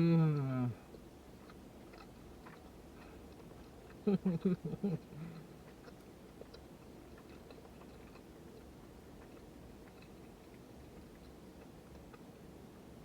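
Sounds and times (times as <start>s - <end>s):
person humming mmm: 0.0s - 0.8s
person chewing: 0.2s - 12.5s.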